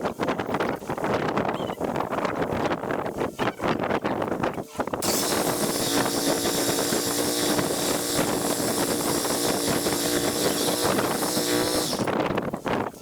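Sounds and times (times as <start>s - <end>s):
loud hiss: 5.0s - 12.1s
mower engine running: 5.0s - 12.1s.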